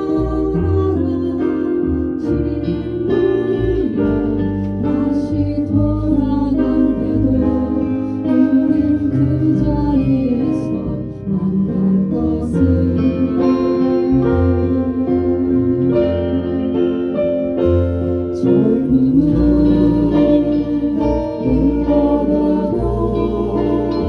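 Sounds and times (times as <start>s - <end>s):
live band playing: 7.0s - 24.0s.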